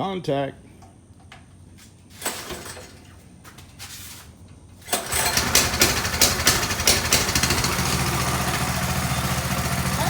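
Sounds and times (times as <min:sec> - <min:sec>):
small engine starting and idling: 0:02.2 - 0:03.1, 0:04.8 - 0:10.0.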